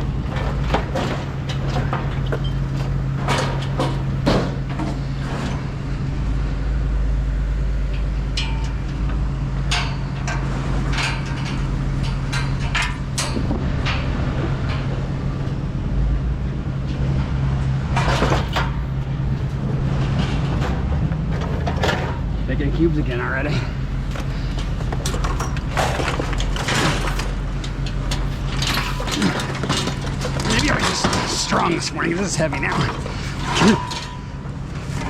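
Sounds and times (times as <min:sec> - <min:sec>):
engine humming: 0:00.0 - 0:35.0
hard objects knocking and clattering: 0:23.9 - 0:31.6.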